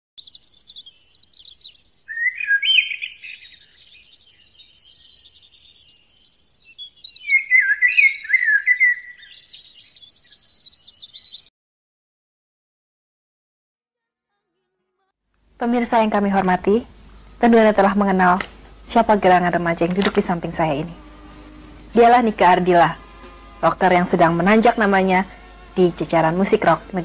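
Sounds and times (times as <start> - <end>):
birds twittering: 0.2 - 11.5.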